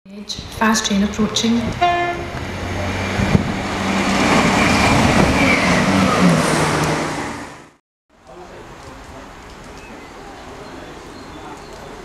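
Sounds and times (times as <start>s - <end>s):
train passing at speed: 1.1s - 7.8s.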